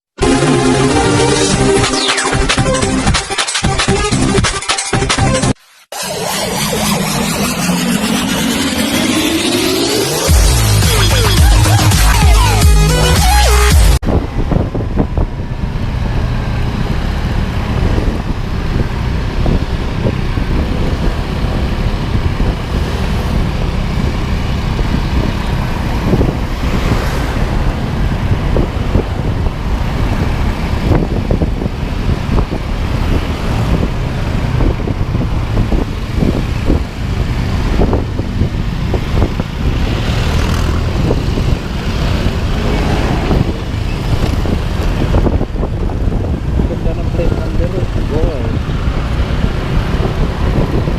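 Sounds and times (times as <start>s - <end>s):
vehicle engine and road rumble: 0.0s - 50.9s.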